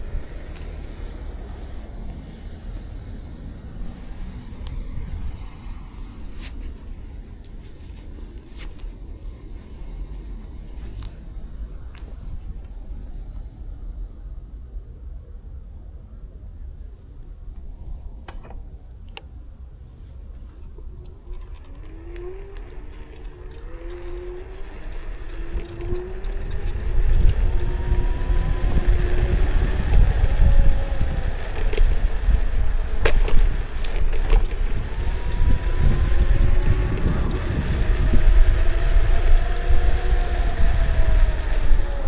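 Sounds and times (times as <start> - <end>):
electric scooter motor whine: 0.0 - 7.0, 20.6 - 42.0
rattles and clicks: 0.0 - 13.4, 17.6 - 42.0
wind and road rumble: 0.0 - 42.0.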